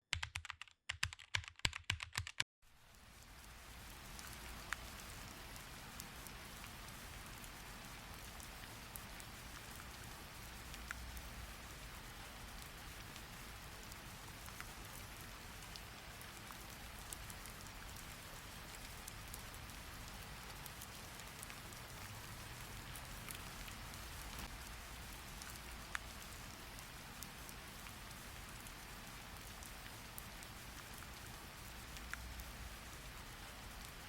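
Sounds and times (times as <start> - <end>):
ticks of raindrops: 0.2 - 34.0
faint steady rain: 2.6 - 34.0.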